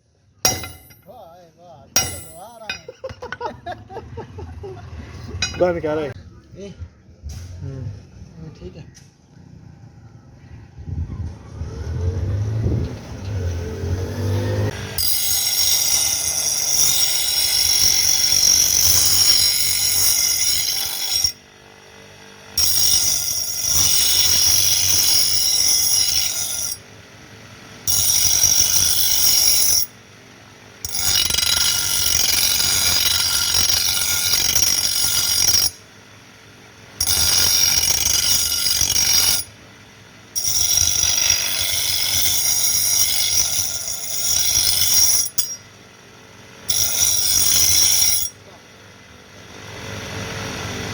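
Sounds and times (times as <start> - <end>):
high-pitched metal grinding: 0.4 - 1.4, 2.0 - 4.0, 5.0 - 6.2, 13.2 - 21.4, 22.6 - 26.8, 30.9 - 35.8, 37.0 - 39.6, 40.4 - 45.6, 46.7 - 48.4.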